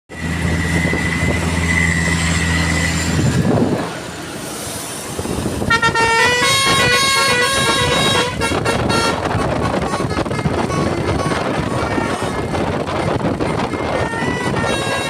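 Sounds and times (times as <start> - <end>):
musical air horn: 5.7 - 15.0.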